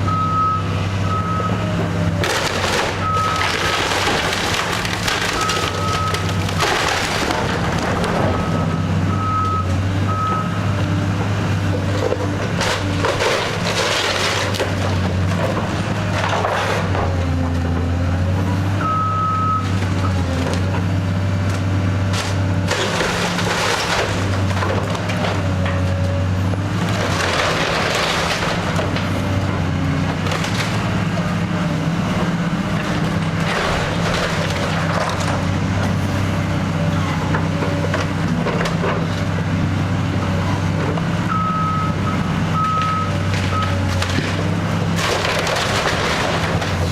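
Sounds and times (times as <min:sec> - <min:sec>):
diesel engine under load: 0:00.0 - 0:46.9
building crunching apart: 0:02.0 - 0:08.7, 0:11.5 - 0:18.1, 0:19.6 - 0:36.1, 0:42.7 - 0:46.9.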